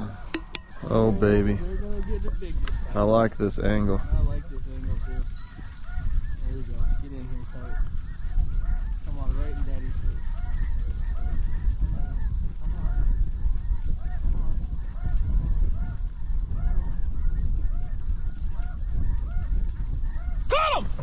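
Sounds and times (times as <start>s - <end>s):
geese honking: 0.0s - 21.0s
wind rumble on microphone: 0.0s - 21.0s.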